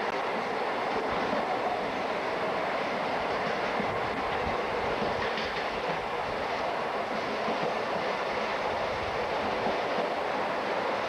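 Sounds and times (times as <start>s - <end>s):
train rumbling on rails: 0.0s - 11.0s
low knocks from train wheels: 3.3s - 6.2s, 7.0s - 8.4s.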